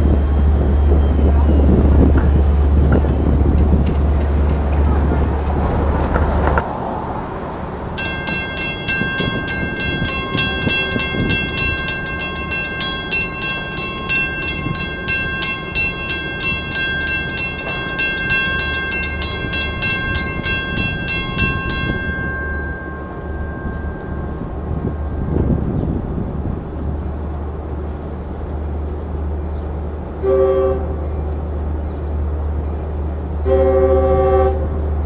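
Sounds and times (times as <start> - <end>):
passing train rumble: 0.0 - 35.0
level crossing bell ringing: 8.0 - 25.6.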